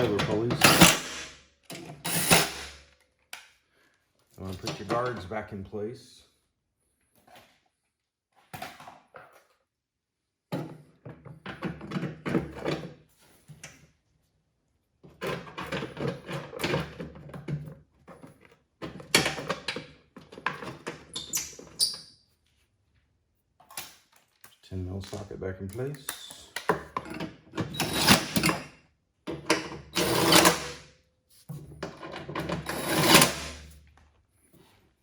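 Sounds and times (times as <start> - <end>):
metal parts clattering and clicking: 0.0 - 2.8, 27.1 - 28.6, 29.5 - 30.8, 32.0 - 33.8.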